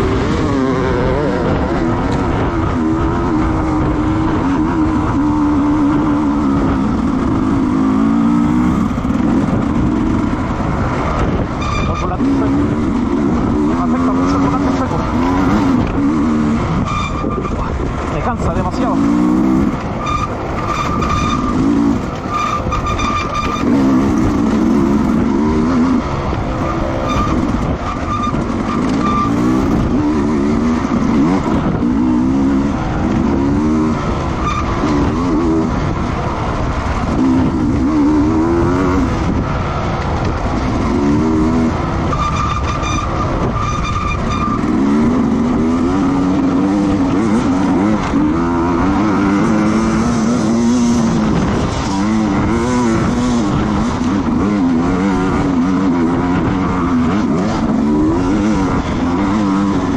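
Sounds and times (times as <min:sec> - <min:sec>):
steady noisy rush: 0:00.0 - 0:43.9
motorcycle engines revving: 0:00.0 - 0:59.9.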